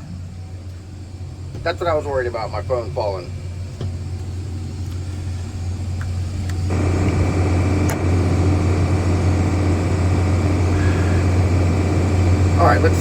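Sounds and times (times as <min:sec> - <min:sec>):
excavator diesel engine revving: 0:05.6 - 0:13.0.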